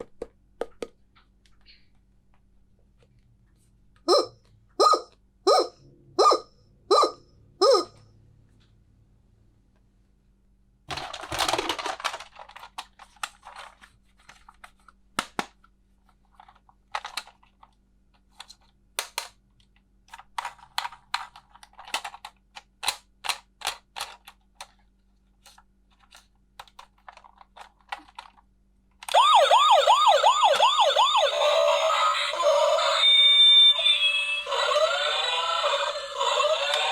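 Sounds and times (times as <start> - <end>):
toy electronic siren warbling: 4.1 - 7.9, 29.1 - 36.9
plastic toy pieces clicking: 10.9 - 13.8, 20.1 - 24.8, 25.4 - 28.4, 34.5 - 36.9.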